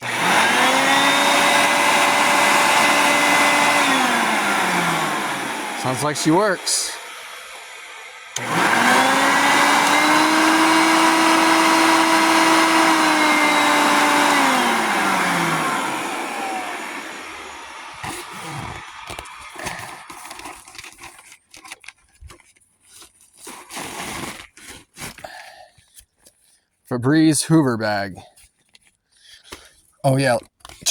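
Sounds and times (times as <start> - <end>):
vacuum motor whine: 0.0 - 21.1.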